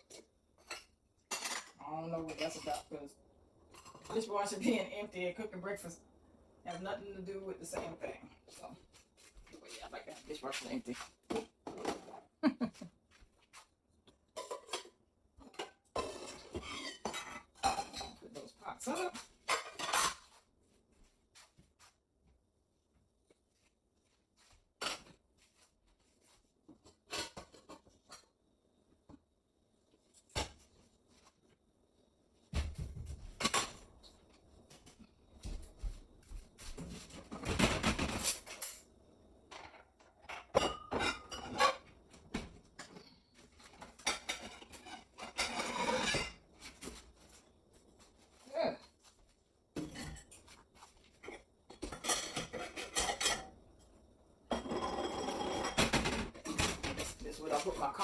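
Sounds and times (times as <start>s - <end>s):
dishes and pans clattering: 0.0s - 2.9s, 3.7s - 4.7s, 11.3s - 12.3s, 14.3s - 18.3s, 18.9s - 20.4s, 24.8s - 25.2s, 26.8s - 28.3s, 32.6s - 34.2s, 36.8s - 38.9s, 39.5s - 47.0s, 49.8s - 53.6s, 54.5s - 58.0s.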